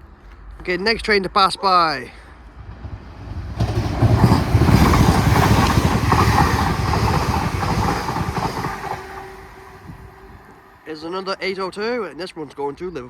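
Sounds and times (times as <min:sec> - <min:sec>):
train passing: 0:01.9 - 0:11.6.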